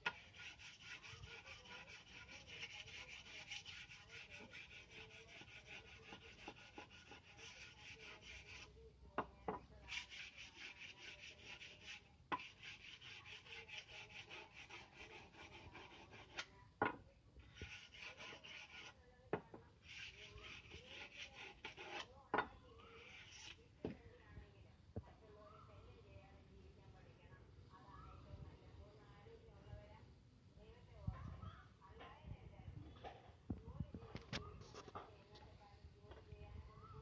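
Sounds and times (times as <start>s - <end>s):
blade sharpening rasping strokes: 0.0s - 8.7s, 9.8s - 16.5s, 17.5s - 19.0s, 19.8s - 22.1s, 22.9s - 23.6s.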